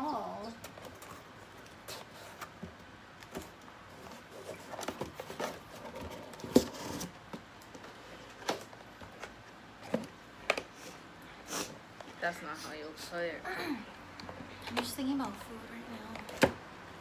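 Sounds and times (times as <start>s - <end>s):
packaging rustles and light clicks: 0.6s - 10.8s.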